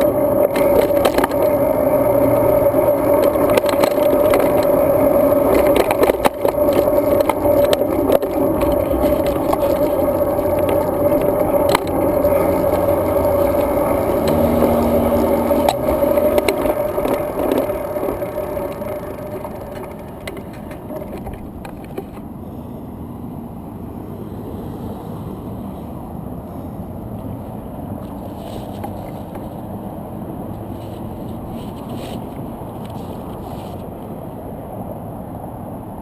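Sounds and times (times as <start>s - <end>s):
bike clicks and rattles: 0.0s - 22.3s, 28.0s - 29.7s, 30.5s - 34.1s
bike tyre road noise: 0.0s - 36.0s.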